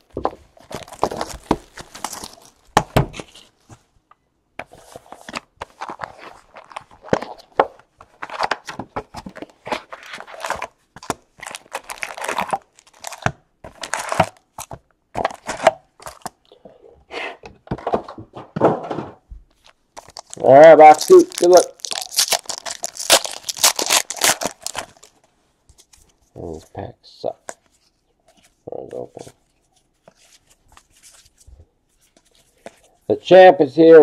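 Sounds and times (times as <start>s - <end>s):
cards and cardboard handled: 0.1s - 3.8s, 4.6s - 16.4s, 19.5s - 26.7s, 27.4s - 33.0s
foil wrappers crinkling and tearing: 0.6s - 3.5s, 9.4s - 14.7s, 20.0s - 25.2s.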